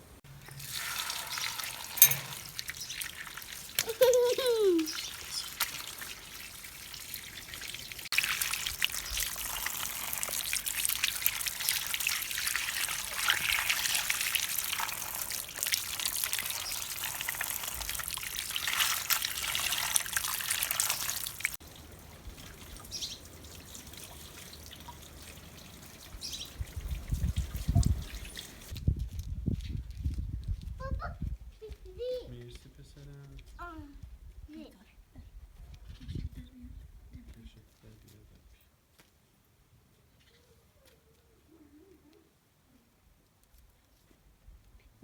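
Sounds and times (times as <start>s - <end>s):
water running and trickling: 0.3s - 28.8s.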